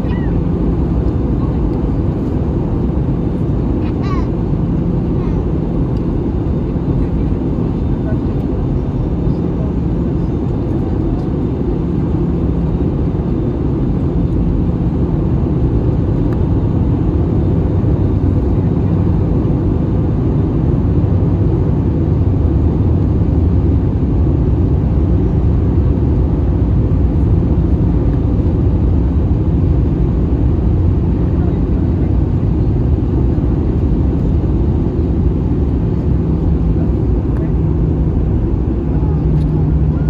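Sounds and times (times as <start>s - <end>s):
airplane cabin roar: 0.0s - 40.0s.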